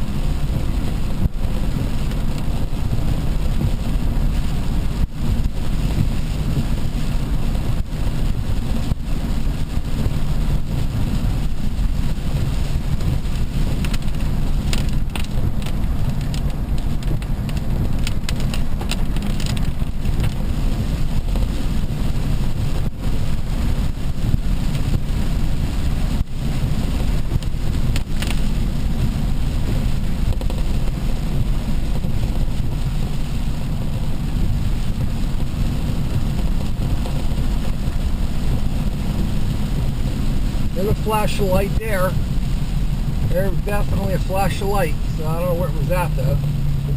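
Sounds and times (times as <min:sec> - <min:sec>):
car driving rumble: 0:00.0 - 0:46.9.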